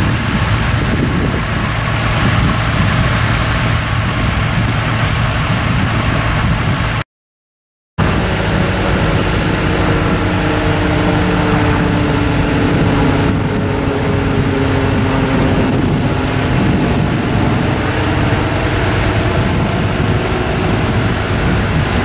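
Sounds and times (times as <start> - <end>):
tractor engine running: 0.0 - 7.0, 8.0 - 22.0.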